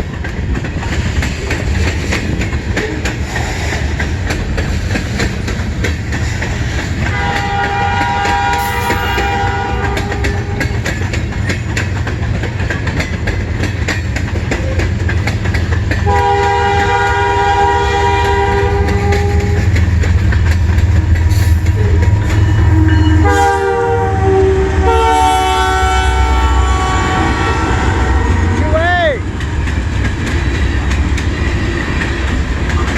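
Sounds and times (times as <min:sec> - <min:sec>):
wheels clicking on rail joints: 0:00.0 - 0:23.9, 0:26.6 - 0:32.9
train rumbling: 0:00.0 - 0:32.9
locomotive horn chord: 0:07.1 - 0:10.8, 0:16.0 - 0:19.8, 0:20.9 - 0:28.8.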